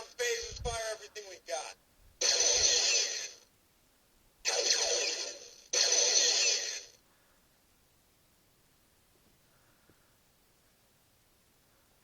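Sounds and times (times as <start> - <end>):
toy laser blasts from small speaker: 2.2 - 3.4, 4.4 - 7.0.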